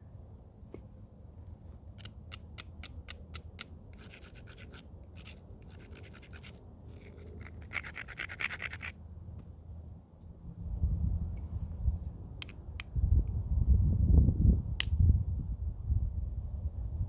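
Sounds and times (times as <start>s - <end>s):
stone scratching strokes: 3.9s - 9.0s.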